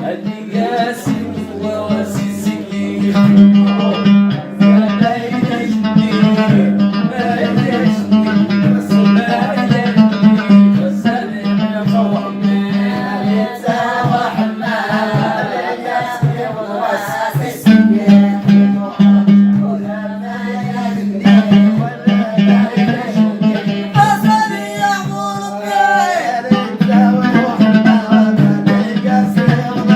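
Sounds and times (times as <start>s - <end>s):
plucked strings: 0.0s - 25.1s, 26.5s - 29.9s
person singing: 0.0s - 29.9s
low droning note: 1.1s - 4.0s.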